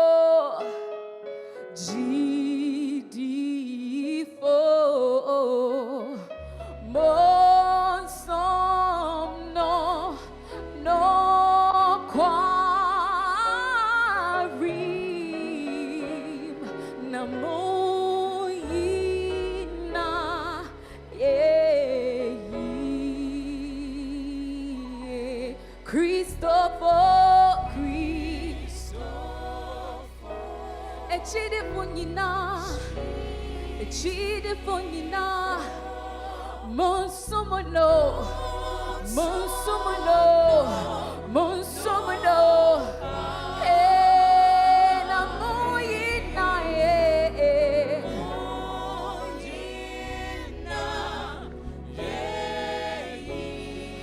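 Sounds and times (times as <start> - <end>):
choir holding long notes: 6.9 - 25.5, 26.4 - 54.0
voices singing with vibrato: 26.1 - 54.0.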